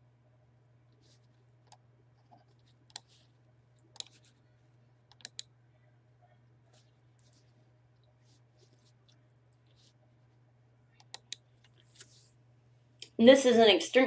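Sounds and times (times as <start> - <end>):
faint low hum: 0.0 - 14.0
computer mouse clicks: 1.6 - 3.1, 3.9 - 4.4, 5.1 - 5.5, 11.0 - 12.1.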